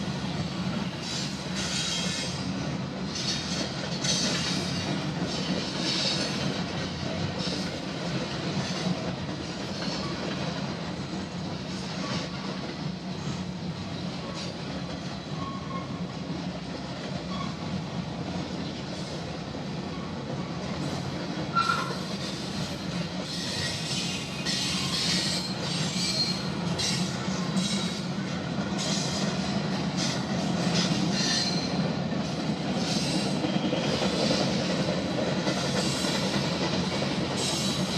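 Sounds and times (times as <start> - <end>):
train wheels rumbling on rail: 0.0 - 37.9
wheel squeal: 21.5 - 22.4, 23.3 - 27.0.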